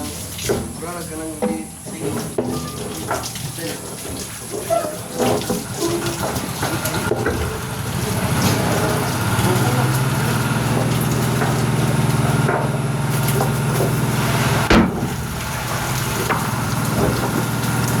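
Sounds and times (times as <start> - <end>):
farm machinery drone: 5.2 - 18.0
knocks: 12.4 - 17.6.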